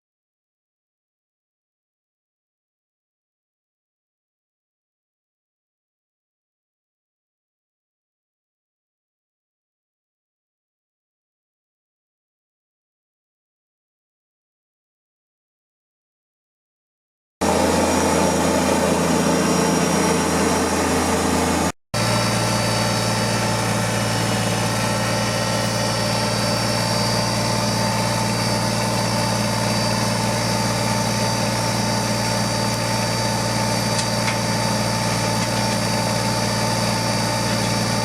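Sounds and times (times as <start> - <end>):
tractor engine running: 17.4 - 38.0.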